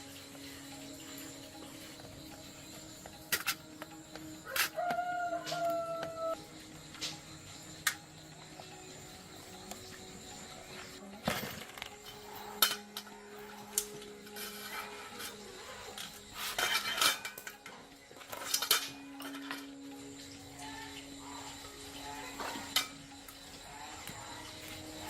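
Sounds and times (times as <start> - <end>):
metal tools clinking: 11.2 - 19.8.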